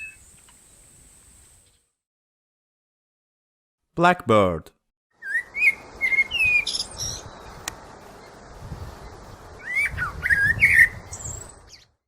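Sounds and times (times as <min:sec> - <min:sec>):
blackbird singing: 0:00.0 - 0:00.4, 0:05.2 - 0:12.0.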